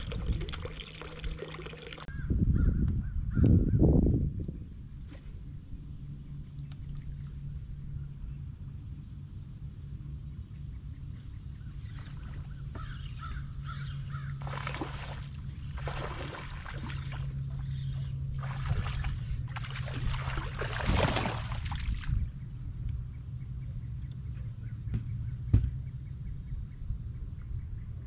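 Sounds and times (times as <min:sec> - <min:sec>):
steady low hum: 0:00.0 - 0:28.0
raspy bird calls: 0:10.7 - 0:15.0, 0:17.5 - 0:18.2.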